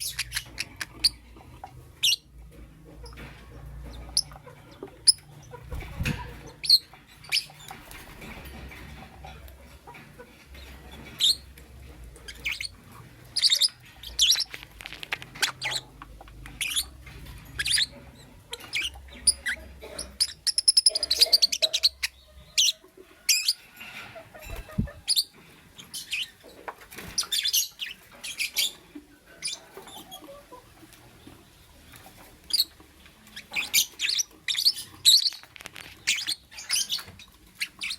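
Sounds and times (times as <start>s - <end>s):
lovebird chirping: 0.0s - 1.3s, 12.2s - 14.6s, 18.5s - 23.6s, 33.3s - 37.9s.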